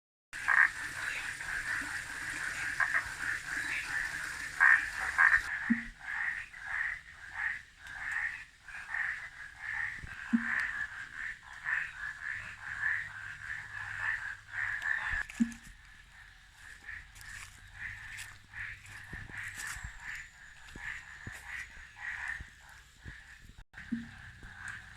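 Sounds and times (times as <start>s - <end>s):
frogs calling: 0.4s - 24.9s
brief lower frog call: 10.2s - 10.9s.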